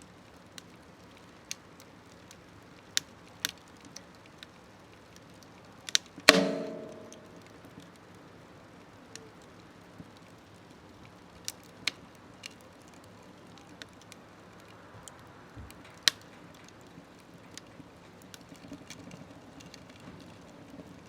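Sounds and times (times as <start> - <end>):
faint low hiss: 0.0 - 21.0
wood fire crackling: 0.0 - 21.0.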